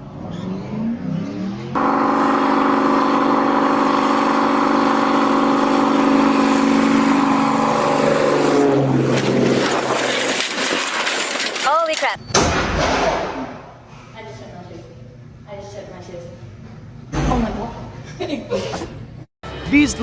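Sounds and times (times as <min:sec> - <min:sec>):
low-flying aircraft engine drone: 0:01.8 - 0:10.2.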